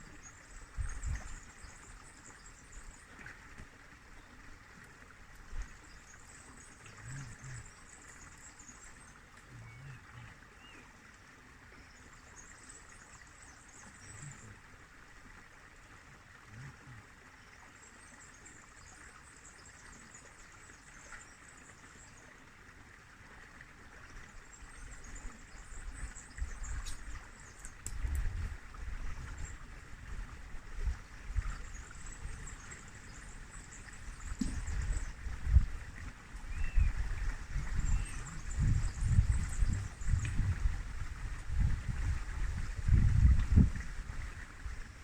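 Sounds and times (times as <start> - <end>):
wind rumble on microphone: 0.0 - 1.7, 24.7 - 45.0
flowing water: 0.0 - 45.0.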